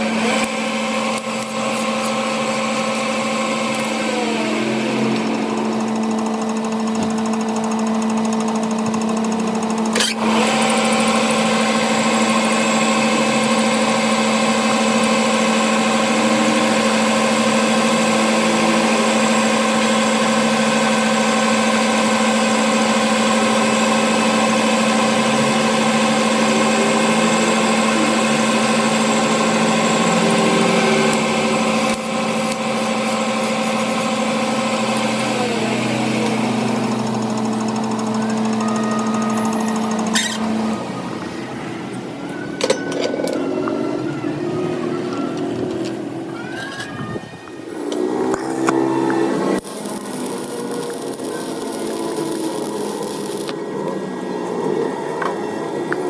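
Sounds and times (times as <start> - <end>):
electric machine humming: 0.0 - 46.4, 47.2 - 56.0
motor whine spinning down: 0.0 - 46.4, 47.1 - 56.0.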